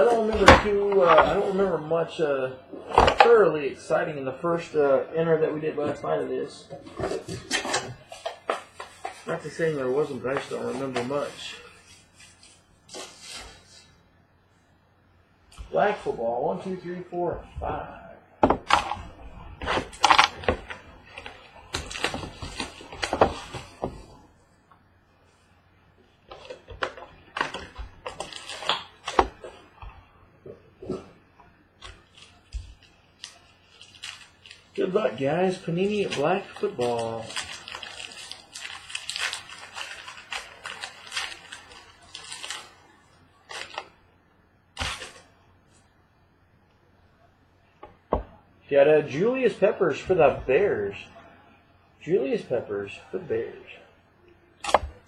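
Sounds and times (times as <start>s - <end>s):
wrapping rustling: 5.8s - 14.0s, 18.7s - 24.3s, 26.1s - 30.0s, 31.8s - 44.0s
card packaging crinkling and tearing: 6.8s - 13.9s, 18.7s - 24.1s, 26.3s - 29.8s, 31.8s - 44.0s, 44.8s - 45.3s.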